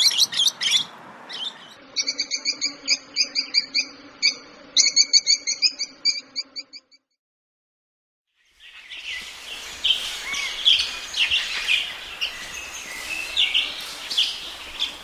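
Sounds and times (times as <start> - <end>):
lovebirds chirping: 8.5 - 15.0
background hiss: 8.6 - 15.0.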